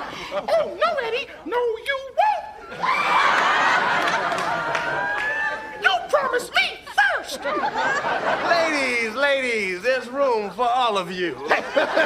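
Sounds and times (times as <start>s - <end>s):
audience laughter: 2.7s - 5.8s, 7.3s - 9.1s, 11.4s - 12.0s.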